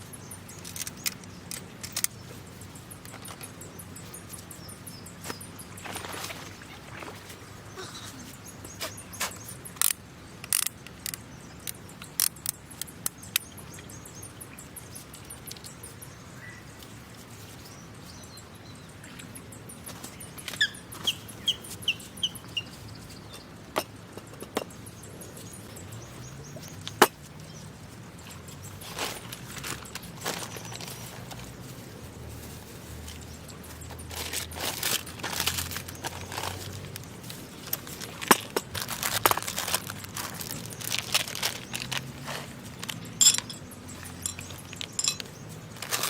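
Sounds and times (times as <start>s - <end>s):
sharp clicks and snaps: 9.2s - 13.5s.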